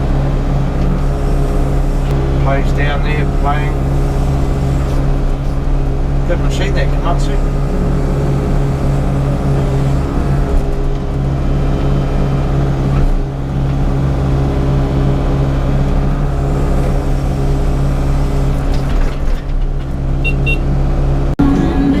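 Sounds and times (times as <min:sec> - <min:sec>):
excavator diesel engine running: 0:00.0 - 0:22.0
short high beeps: 0:20.2 - 0:20.6.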